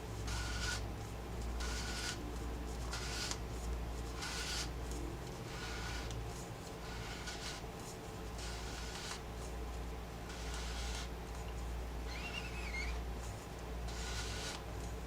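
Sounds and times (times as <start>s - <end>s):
airy hissing with faint whistle: 12.1s - 13.0s.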